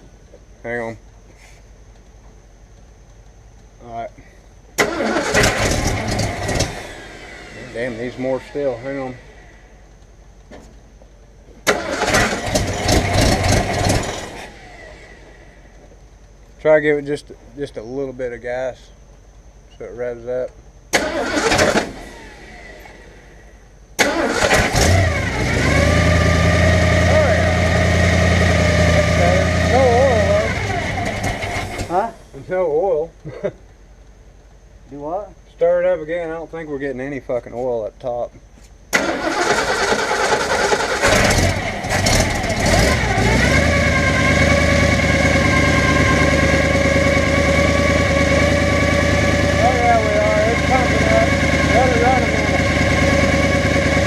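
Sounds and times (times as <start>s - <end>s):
steady whine: 0.0s - 54.0s
engine cranking and idling: 4.8s - 10.5s, 11.5s - 16.0s, 20.9s - 23.3s, 24.0s - 32.4s, 38.9s - 54.0s.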